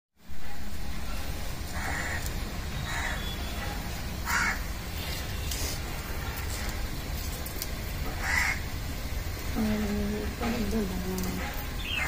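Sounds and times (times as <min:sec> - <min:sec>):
bird calls: 0:01.8 - 0:05.1, 0:11.2 - 0:12.0.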